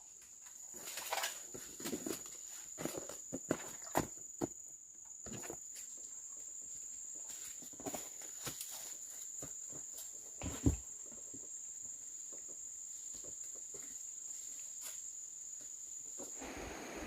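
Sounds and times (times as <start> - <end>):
insect droning: 0.0 - 17.0
thump: 10.4 - 10.8.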